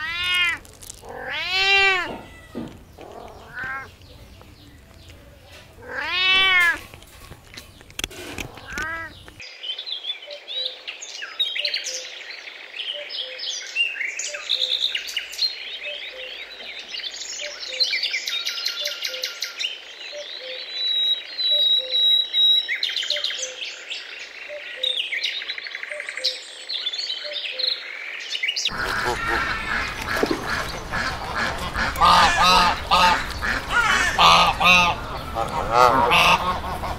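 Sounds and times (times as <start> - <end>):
cat meowing: 0.0 - 3.9, 5.8 - 6.8, 8.6 - 9.2
small birds chirping and trilling: 0.0 - 36.9
faint pipping bird call: 28.7 - 36.9.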